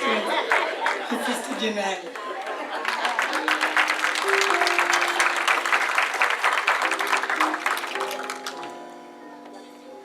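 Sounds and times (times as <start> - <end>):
congregation applauding: 0.0 - 1.2, 2.0 - 9.0
instrumental music with held notes: 3.7 - 10.0.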